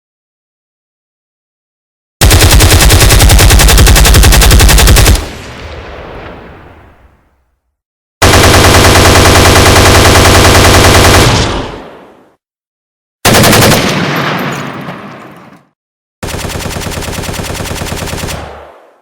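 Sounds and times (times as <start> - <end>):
machine-gun fire bursts: 2.2 - 5.5, 8.2 - 12.0, 13.2 - 14.6, 16.2 - 19.0.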